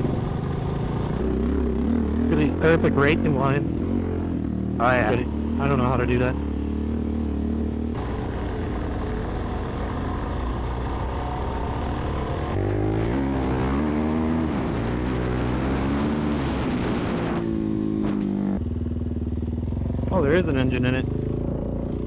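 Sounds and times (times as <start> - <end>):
dirt bike engine revving: 0.0 - 18.7.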